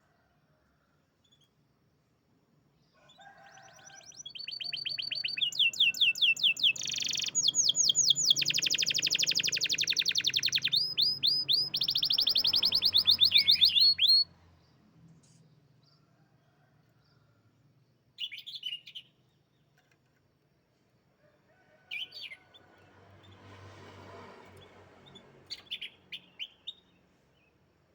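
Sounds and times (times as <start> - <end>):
canary singing trills: 3.1 - 14.3.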